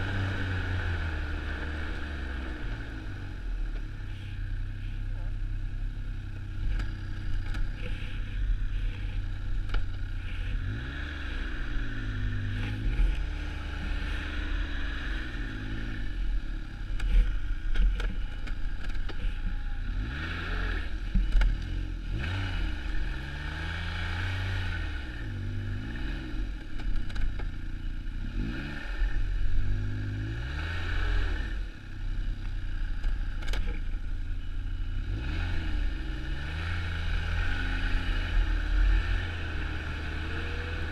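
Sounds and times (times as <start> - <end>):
snowmobile engine revving: 35.1 - 40.9.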